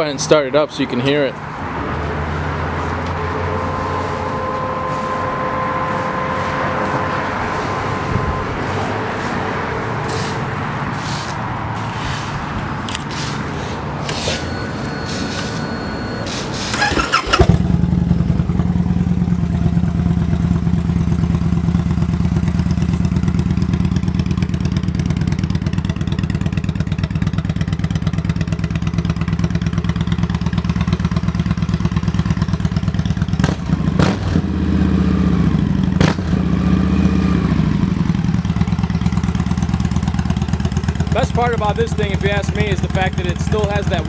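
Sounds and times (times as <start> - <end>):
motorcycle engine idling and revving: 0.0 - 44.0
motorcycle starter cranking: 14.0 - 17.7.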